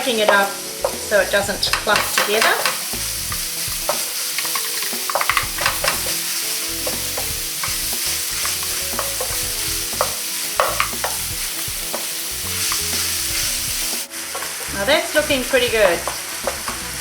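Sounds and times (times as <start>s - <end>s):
meat sizzling in a frying pan: 0.0s - 17.0s
wooden spoon scraping and tapping: 1.7s - 14.7s.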